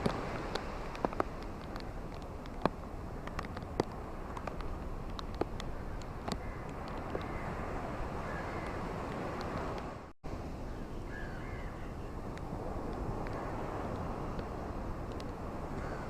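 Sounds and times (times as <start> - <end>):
ocean waves washing onto beach: 0.0 - 16.0
faint bird calls: 8.2 - 8.8, 10.7 - 12.1.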